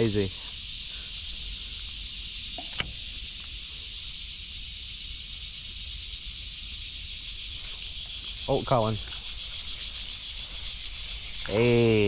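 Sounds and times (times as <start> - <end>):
insects chorus: 0.0 - 12.0
sharp click: 2.6 - 3.0.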